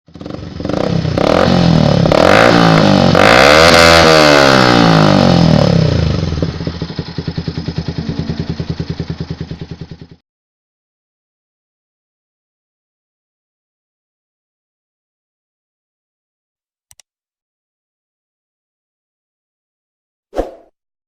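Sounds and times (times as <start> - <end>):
motorcycle engine revving: 0.1 - 10.2.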